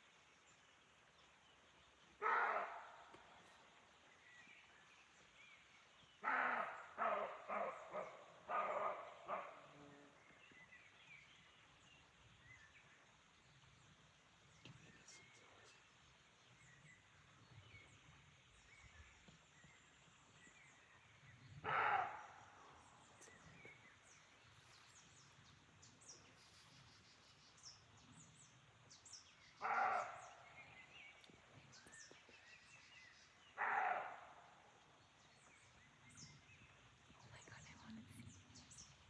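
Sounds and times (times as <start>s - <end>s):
deer barking: 2.2s - 2.9s, 6.2s - 9.7s, 21.6s - 22.3s, 29.6s - 30.3s, 33.6s - 34.3s
small birds chirping: 13.8s - 39.0s.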